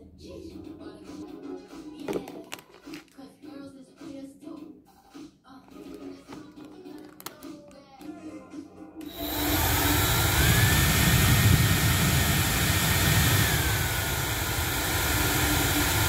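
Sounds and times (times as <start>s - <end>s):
hair dryer blowing: 9.0s - 16.0s.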